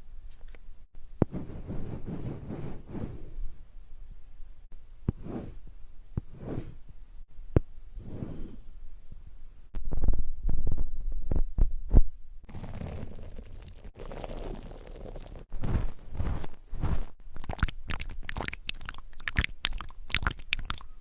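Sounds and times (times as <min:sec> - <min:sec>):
muffled rubbing on microphone: 0:01.2 - 0:03.6, 0:05.1 - 0:06.8, 0:08.0 - 0:08.7, 0:15.5 - 0:17.2
soft brushing swishes: 0:01.3 - 0:03.3, 0:06.2 - 0:06.8, 0:15.5 - 0:17.2.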